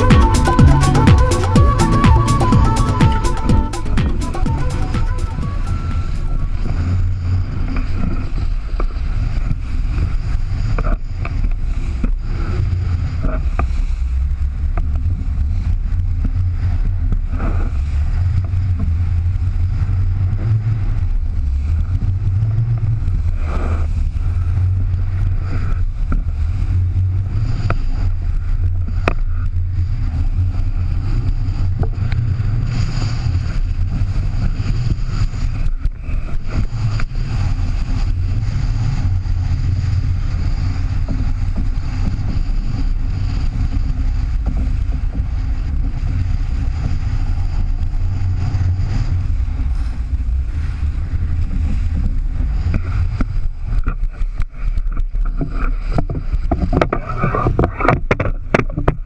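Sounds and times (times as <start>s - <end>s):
boat engine droning: 0.0s - 8.3s.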